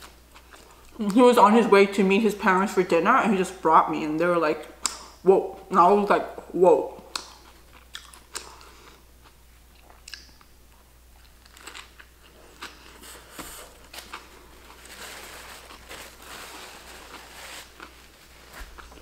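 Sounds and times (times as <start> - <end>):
wet mouth clicks: 4.8 - 5.1, 7.1 - 8.7, 10.0 - 10.5
paper napkin rustling: 12.9 - 19.0.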